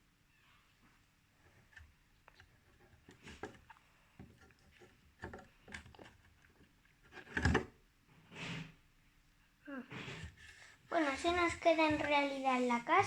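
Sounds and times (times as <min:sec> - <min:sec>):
objects knocking and clicking: 0:01.7 - 0:07.8.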